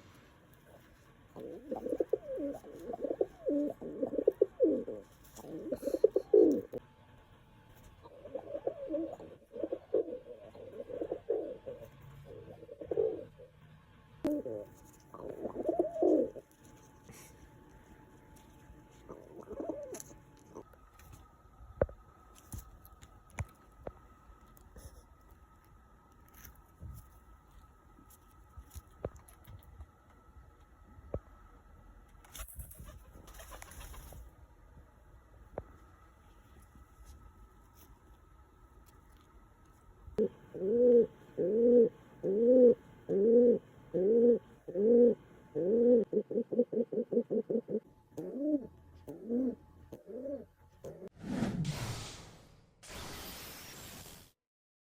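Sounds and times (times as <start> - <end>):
pigeon cooing: 1.4 - 6.8, 8.1 - 13.5, 14.2 - 16.4, 19.1 - 20.6, 40.2 - 51.1.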